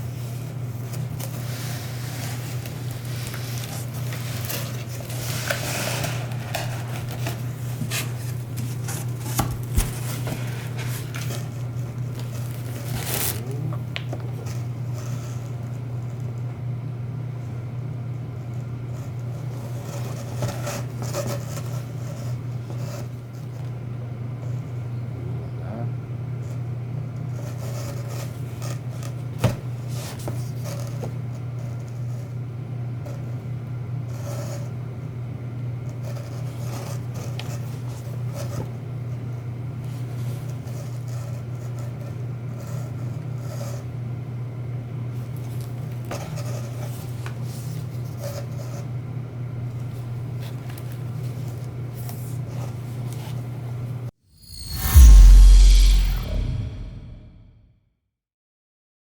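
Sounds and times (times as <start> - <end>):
rustling and scraping handling noises: 0.0 - 15.6
steady low hum: 54.4 - 57.5.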